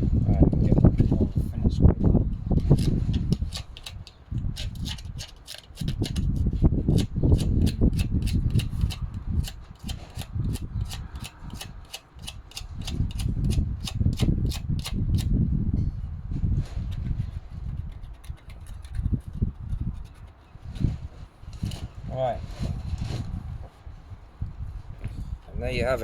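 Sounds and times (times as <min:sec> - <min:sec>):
scrubbing on metal: 0:02.5 - 0:15.3, 0:16.9 - 0:21.9.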